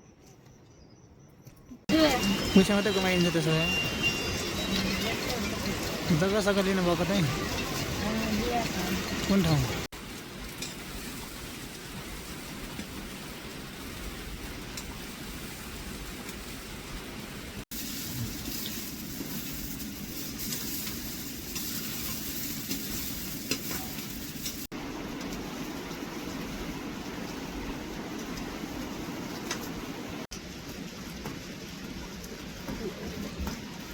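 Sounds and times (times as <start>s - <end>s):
water drips and ticks: 1.4s - 16.5s, 24.3s - 33.9s
steady rain falling: 1.9s - 33.9s.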